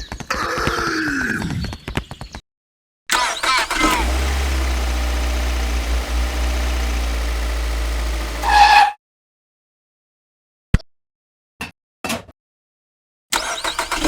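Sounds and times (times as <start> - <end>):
engine idling with deep rumble: 3.3 - 8.7.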